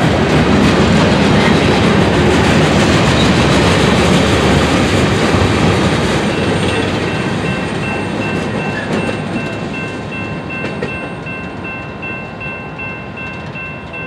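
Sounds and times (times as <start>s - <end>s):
freight train rolling over rails: 0.0s - 14.0s
crossing bell dinging: 6.1s - 14.0s.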